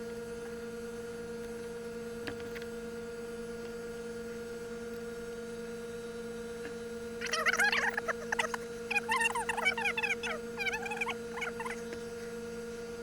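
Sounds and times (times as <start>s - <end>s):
steady electrical hum: 0.0s - 13.0s
high warbling chirps: 7.2s - 11.8s.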